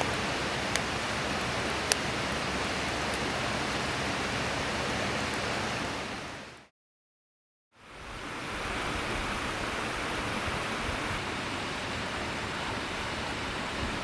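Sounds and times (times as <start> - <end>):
river water rushing: 0.0 - 6.6.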